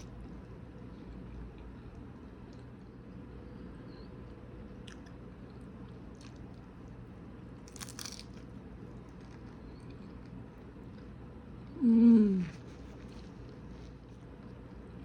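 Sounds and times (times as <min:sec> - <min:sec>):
low room hum: 0:00.0 - 0:15.0
crunching bite: 0:07.6 - 0:08.5
person chewing crunchy food: 0:07.6 - 0:11.2, 0:12.3 - 0:15.0.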